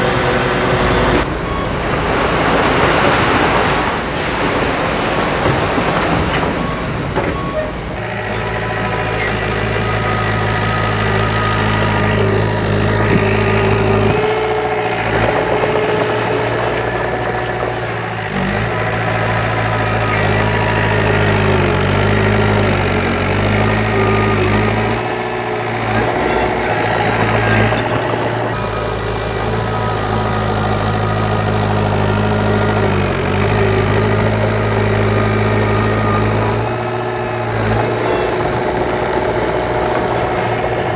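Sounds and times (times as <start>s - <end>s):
heavy machinery diesel engine: 0.0s - 40.9s.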